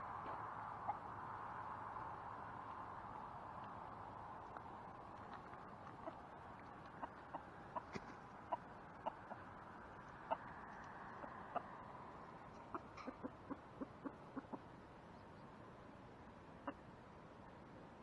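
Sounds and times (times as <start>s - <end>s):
chickens clucking: 5.8s - 10.6s, 12.5s - 14.7s.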